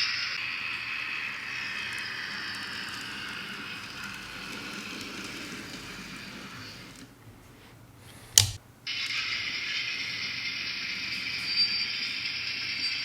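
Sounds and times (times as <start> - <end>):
sharp click: 8.3 - 8.6.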